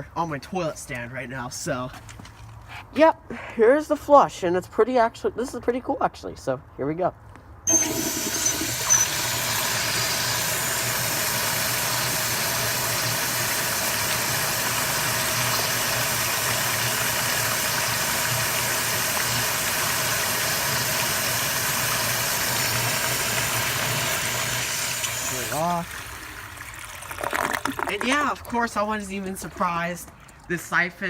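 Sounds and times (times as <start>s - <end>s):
hose water rushing into toilet: 7.7s - 30.6s.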